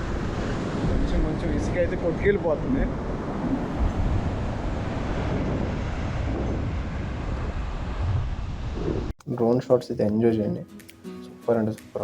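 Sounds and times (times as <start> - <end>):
strong wind on microphone: 0.0 - 9.1.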